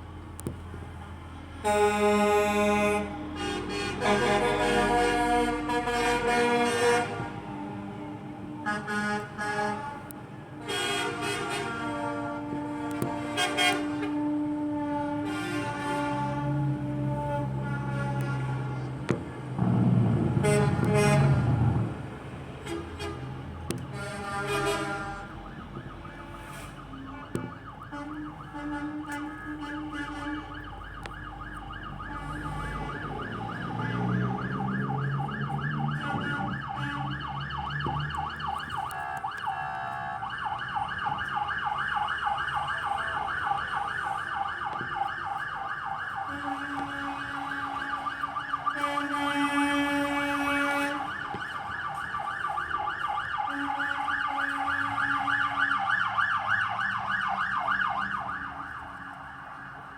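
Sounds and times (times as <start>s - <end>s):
low engine rumble: 0.0s - 59.9s
truck horn blasts: 1.6s - 31.1s, 32.0s - 37.3s, 38.7s - 40.5s, 46.2s - 51.5s, 53.4s - 55.7s
emergency siren warbling: 1.6s - 59.9s.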